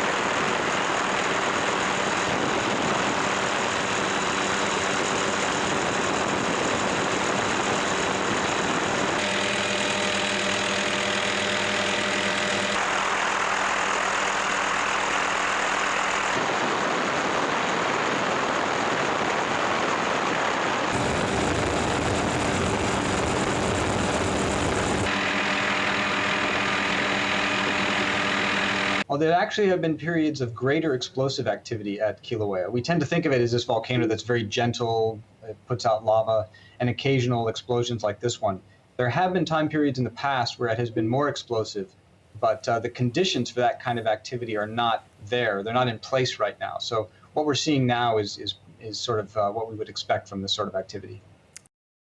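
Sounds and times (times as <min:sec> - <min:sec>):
helicopter engine and rotor noise: 0:00.0 - 0:29.0.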